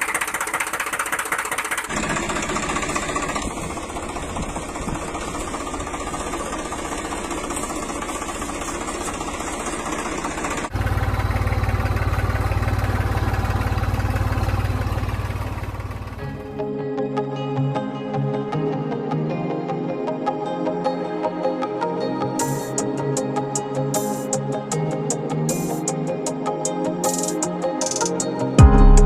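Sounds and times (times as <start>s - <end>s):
tractor diesel engine running: 0.0s - 16.6s.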